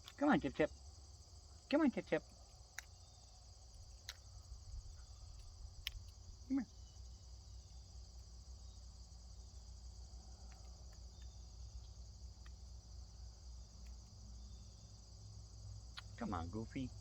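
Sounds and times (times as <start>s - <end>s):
crickets chirping: 0.0s - 17.0s
faint ticks: 3.8s - 6.4s, 10.0s - 12.8s, 13.6s - 14.2s.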